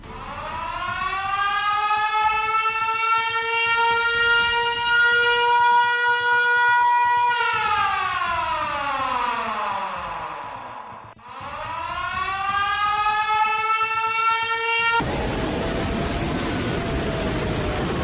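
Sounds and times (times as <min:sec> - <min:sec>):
siren wailing: 0:00.0 - 0:18.0.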